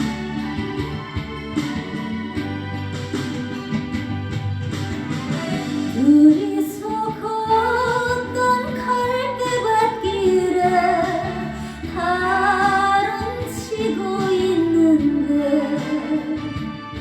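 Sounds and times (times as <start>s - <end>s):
instrumental accompaniment: 0.0s - 17.0s
woman singing a slow ballad: 5.9s - 16.8s.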